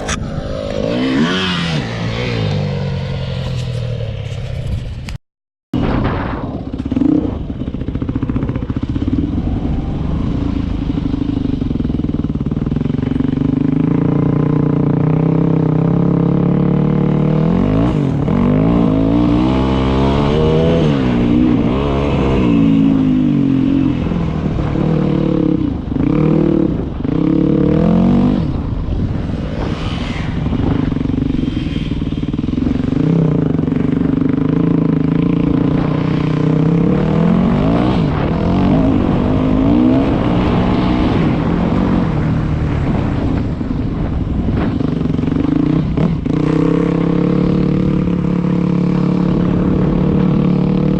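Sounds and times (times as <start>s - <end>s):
dirt bike engine revving: 0.0s - 3.7s.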